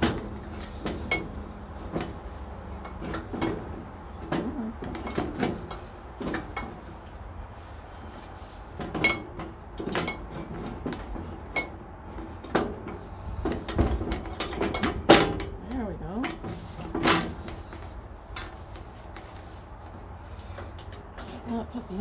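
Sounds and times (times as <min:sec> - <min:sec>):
metal parts clinking and knocking: 0:20.4 - 0:21.5.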